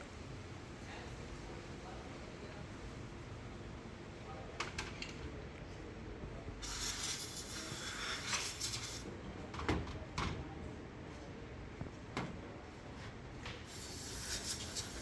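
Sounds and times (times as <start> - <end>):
spray hissing: 6.6 - 9.1, 13.7 - 15.0.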